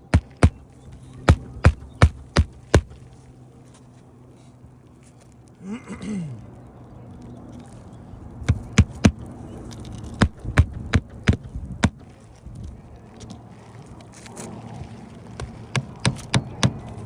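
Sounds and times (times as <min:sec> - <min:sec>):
hammer striking nails: 0:10.2 - 0:12.0.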